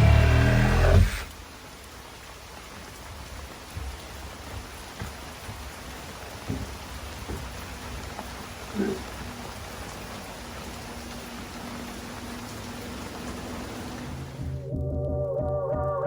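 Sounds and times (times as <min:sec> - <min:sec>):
steady rain: 0:00.0 - 0:14.7.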